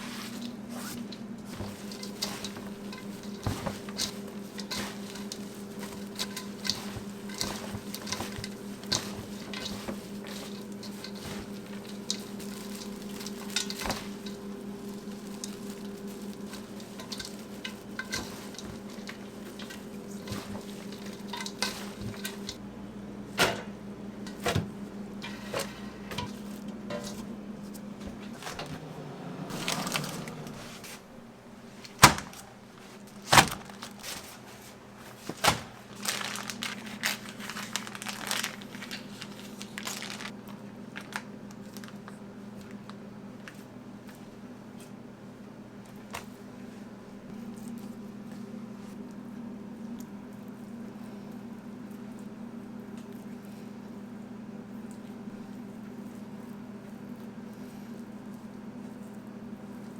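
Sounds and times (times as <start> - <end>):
machine hum: 0.0 - 34.0
utensils and dishes clinking: 0.3 - 22.6, 23.3 - 28.9.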